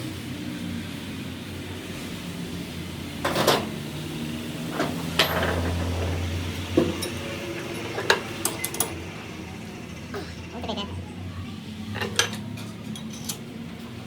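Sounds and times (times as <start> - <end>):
low machine hum: 0.0 - 14.0
metal tools clinking: 4.7 - 6.2, 6.8 - 9.0, 12.0 - 13.5.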